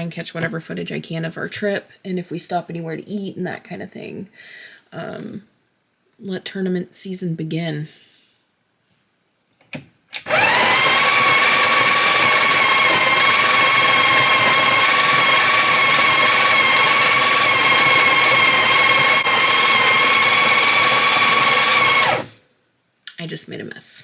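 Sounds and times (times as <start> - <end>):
coffee grinder motor whining: 10.2 - 22.3.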